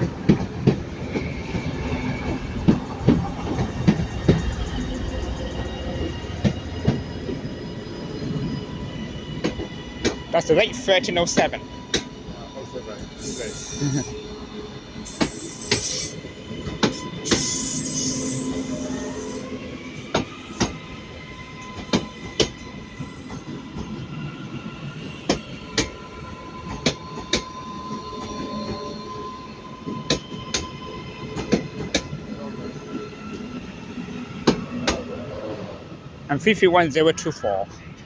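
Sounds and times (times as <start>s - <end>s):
high wheel squeal: 12.6s - 23.3s.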